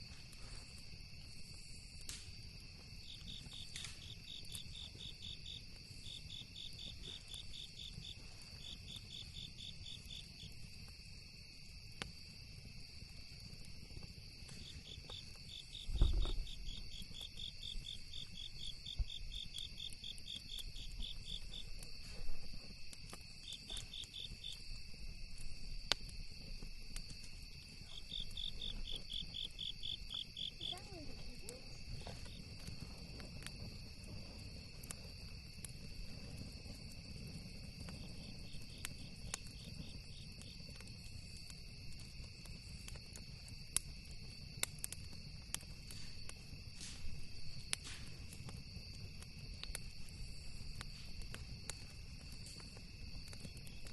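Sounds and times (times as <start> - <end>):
campfire crackling: 0.0 - 53.9
cricket chirping: 0.0 - 53.9
insects buzzing: 0.1 - 53.9
low thump: 15.9 - 16.5.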